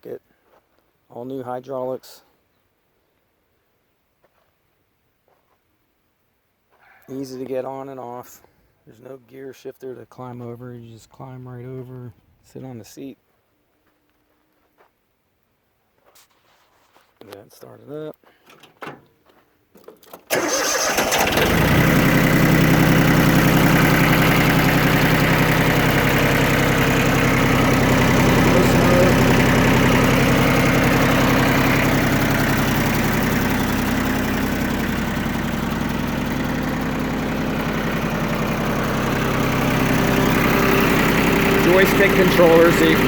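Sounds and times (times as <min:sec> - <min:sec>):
diesel engine starting and idling: 0:20.3 - 0:43.0.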